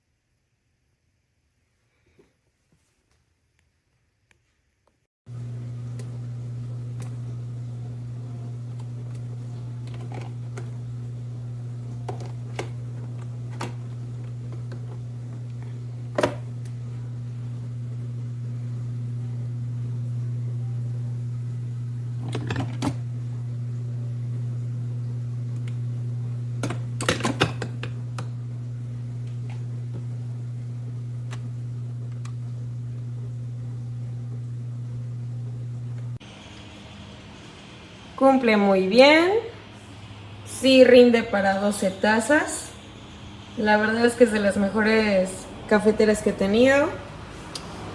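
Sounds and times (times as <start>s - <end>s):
steady low hum: 5.3s - 38.2s.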